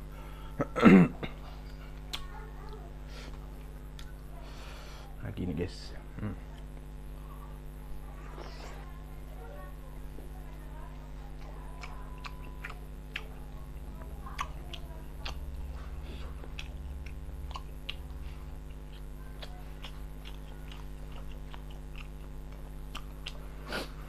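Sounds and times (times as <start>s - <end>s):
man chewing food: 0.0s - 5.0s, 10.0s - 24.0s
steady low hum: 0.0s - 24.0s
mouth smacks and clicks: 2.0s - 2.3s, 11.4s - 13.5s, 14.3s - 23.4s.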